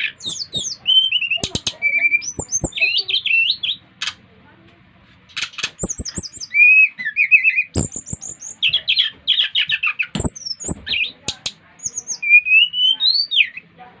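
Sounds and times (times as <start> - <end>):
birds chirping and trilling: 0.0 - 4.3, 5.3 - 13.8
sharp knocks: 10.2 - 10.9.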